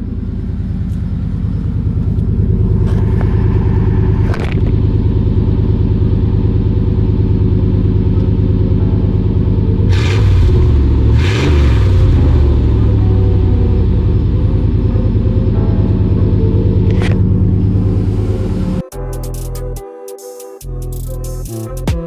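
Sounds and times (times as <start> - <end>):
engine revving: 0.0 - 18.9
pickup truck exhaust idling: 0.0 - 18.9.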